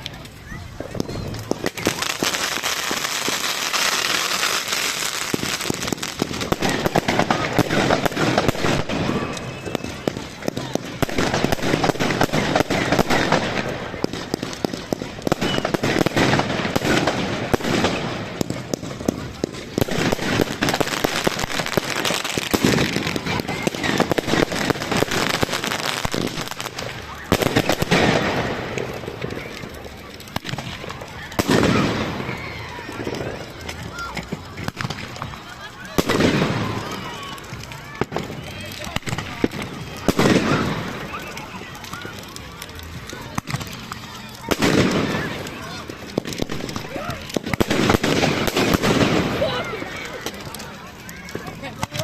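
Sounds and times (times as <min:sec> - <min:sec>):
fireworks bangs and pops: 0:00.0 - 0:52.0
fireworks crackling: 0:00.0 - 0:52.0.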